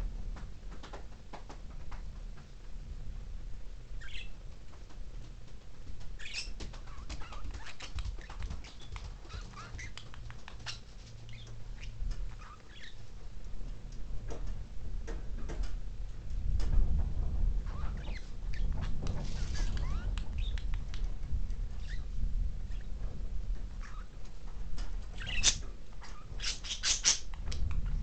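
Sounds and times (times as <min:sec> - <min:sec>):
small clicks and rustles: 0:00.2 - 0:02.8, 0:04.4 - 0:26.6, 0:27.2 - 0:28.0
budgerigars chirping and chattering: 0:04.0 - 0:04.3, 0:06.2 - 0:13.0, 0:17.7 - 0:20.6, 0:23.8 - 0:24.1, 0:25.2 - 0:27.4.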